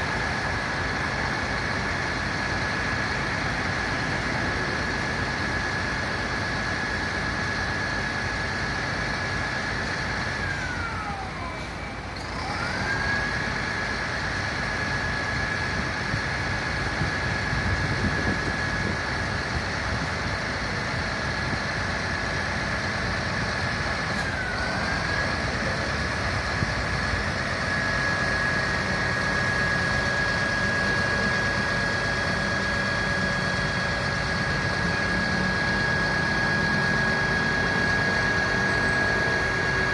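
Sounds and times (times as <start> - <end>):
fire truck engine running: 0.0 - 39.9
high whine: 0.0 - 39.9.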